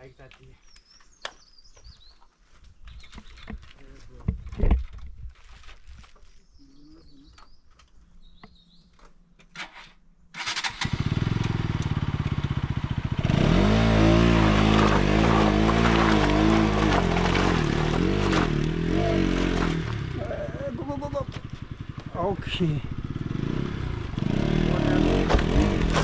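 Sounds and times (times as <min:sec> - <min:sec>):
motorcycle engine revving: 0:10.4 - 0:26.0.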